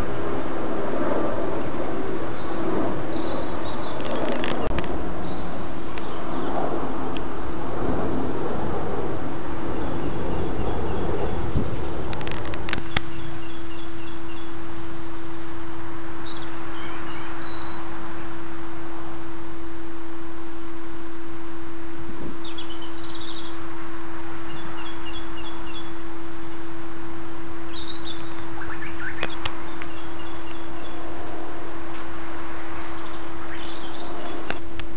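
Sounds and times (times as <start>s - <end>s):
steady hum and hiss: 0.0s - 34.9s
small birds chirping: 1.5s - 6.7s, 9.7s - 15.4s, 16.2s - 18.5s, 22.4s - 23.6s, 24.4s - 26.6s, 27.6s - 31.2s, 32.6s - 34.7s.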